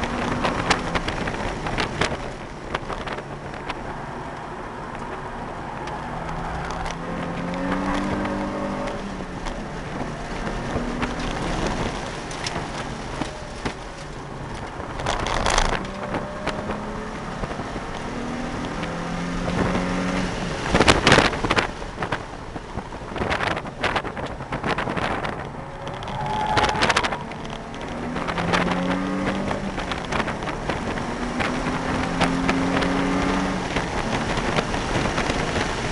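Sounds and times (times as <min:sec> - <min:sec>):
car engine revving: 0:00.0 - 0:35.9.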